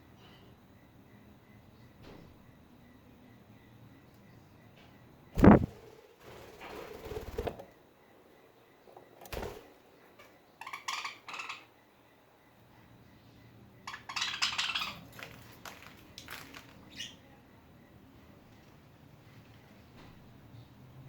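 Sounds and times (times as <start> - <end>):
budgies chattering: 13.9 - 15.3.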